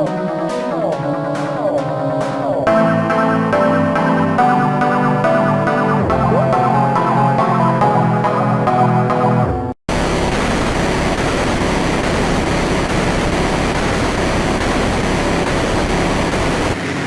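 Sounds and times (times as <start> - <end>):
electronic music: 0.0 - 16.8
loud static hiss: 9.9 - 17.0.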